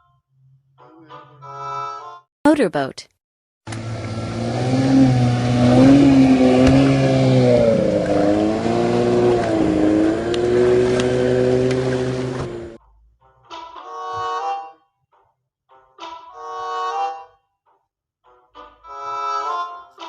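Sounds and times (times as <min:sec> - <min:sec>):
motorboat engine revving: 0:03.7 - 0:12.8.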